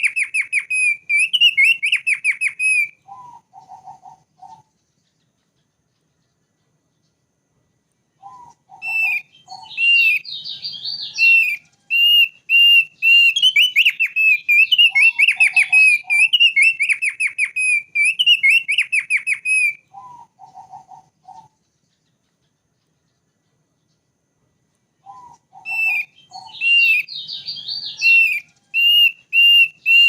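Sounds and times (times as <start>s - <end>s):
bird whistling with fast trills: 0.0s - 4.8s, 8.2s - 21.6s, 25.0s - 30.0s.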